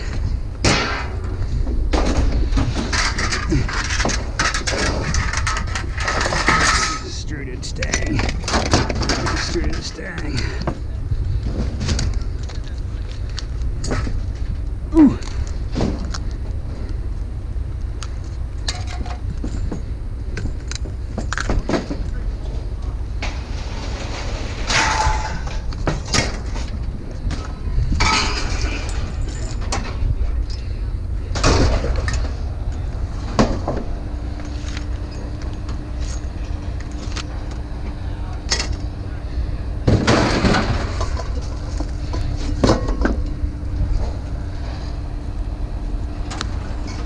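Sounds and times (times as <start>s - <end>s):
machinery rumbling: 0.0s - 47.0s
metal clank: 0.6s - 7.2s, 23.2s - 26.6s, 28.0s - 30.0s
scrap metal scraping: 2.1s - 7.2s.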